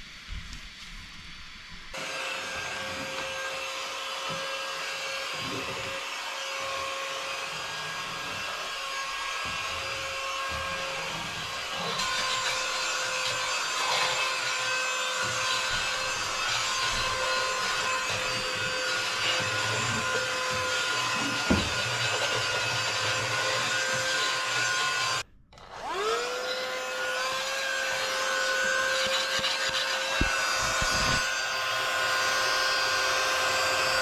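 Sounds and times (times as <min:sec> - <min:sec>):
vacuum mop humming: 0:02.0 - 0:25.2, 0:25.8 - 0:34.0.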